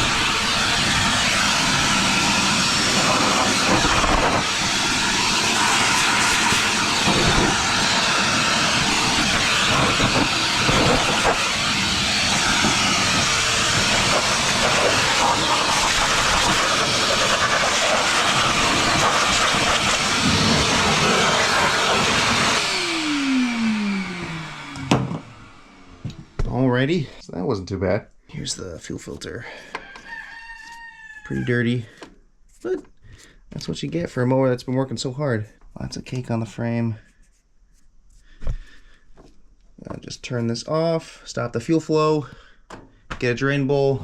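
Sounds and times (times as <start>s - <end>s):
vacuum cleaner running: 0.0s - 27.1s.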